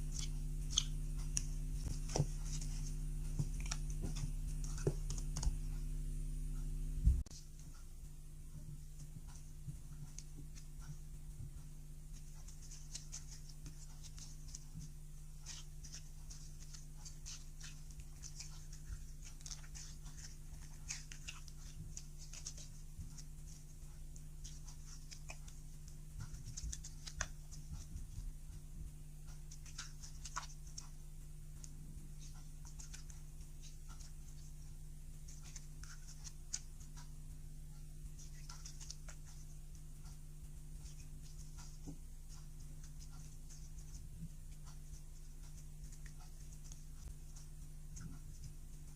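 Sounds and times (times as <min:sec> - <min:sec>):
sticky slime crackles: 0:00.0 - 0:05.6, 0:12.4 - 0:28.2
low hum: 0:00.0 - 0:48.9.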